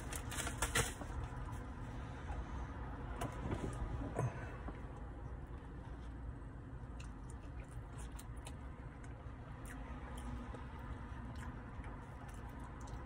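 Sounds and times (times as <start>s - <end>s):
low hum inside a car: 0.0s - 13.0s
person chewing food: 6.9s - 13.0s.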